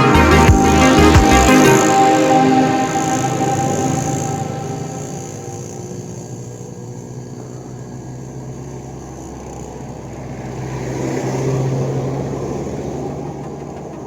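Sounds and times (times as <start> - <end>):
background music: 0.0 - 6.3
vehicle passing by: 0.0 - 14.0.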